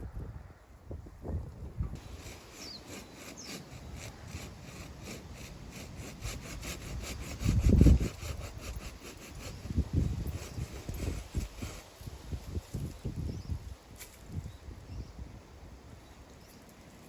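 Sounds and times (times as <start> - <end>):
handsaw cutting wood: 2.0 - 12.6.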